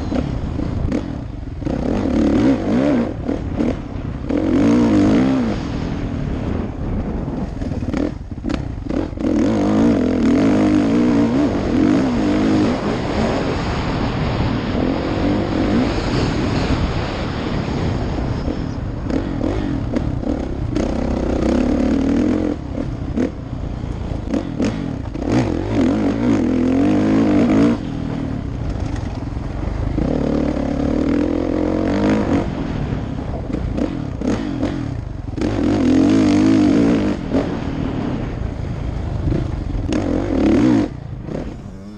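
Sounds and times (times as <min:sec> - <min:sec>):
dirt bike engine revving: 0:00.0 - 0:41.9
bike knocking and rattling: 0:28.5 - 0:29.6.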